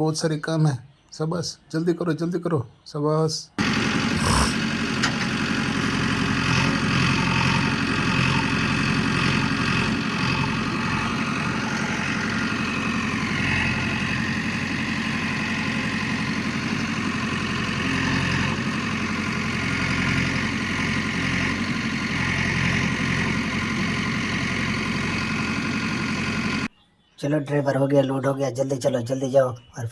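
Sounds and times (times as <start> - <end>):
backhoe engine idling and running: 3.6 - 26.7.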